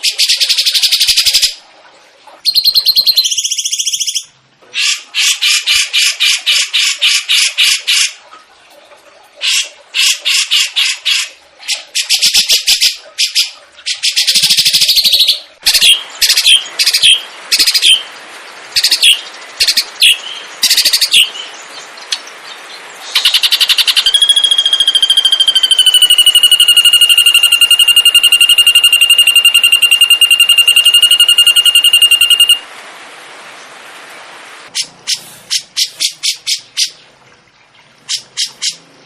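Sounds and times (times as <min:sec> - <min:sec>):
songbird rattling and trilling: 0:02.5 - 0:04.2, 0:23.1 - 0:32.6.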